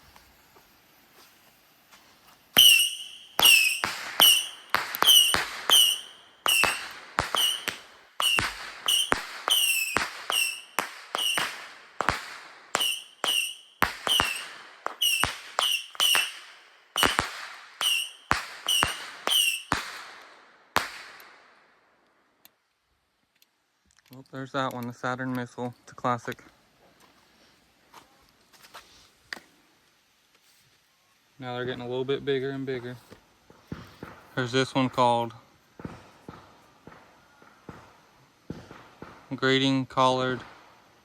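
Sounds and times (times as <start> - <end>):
firework screeching whistles: 2.5 - 19.8
firework cracks: 2.5 - 21.7, 33.4 - 35.1, 35.7 - 41.0.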